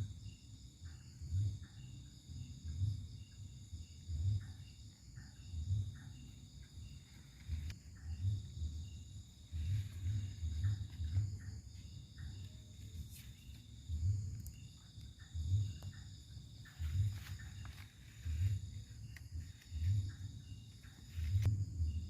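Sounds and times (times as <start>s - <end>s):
insects trilling: 0.0s - 22.0s
low pulsing rumble: 5.4s - 22.0s.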